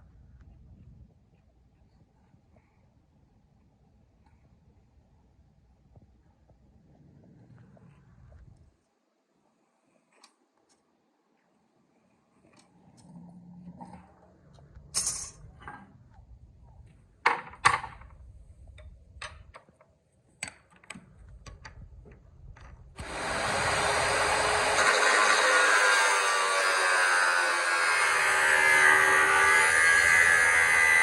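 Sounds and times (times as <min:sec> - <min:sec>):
clicks and metal knocks: 0:17.2 - 0:23.0
power tool motor running: 0:23.0 - 0:31.0.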